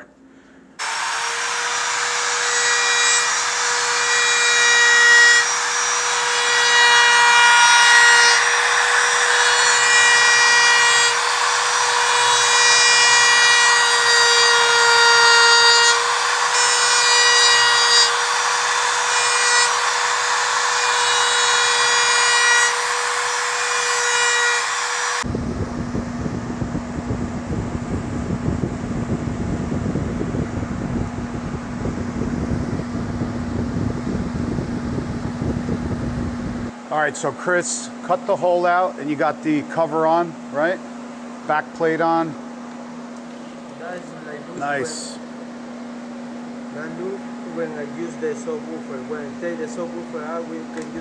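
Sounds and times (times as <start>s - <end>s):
power tool grinding whine: 0.8s - 26.3s.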